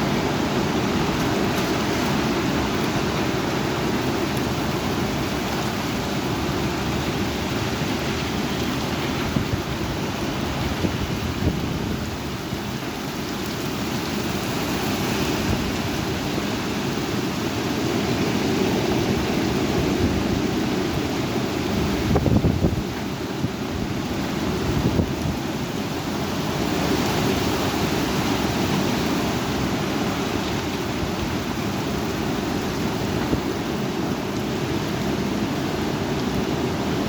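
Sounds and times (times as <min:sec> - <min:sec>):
heavy rain: 0:00.0 - 0:37.0
strong wind: 0:00.0 - 0:37.0
wind buffeting microphone: 0:08.8 - 0:12.9, 0:18.5 - 0:25.6.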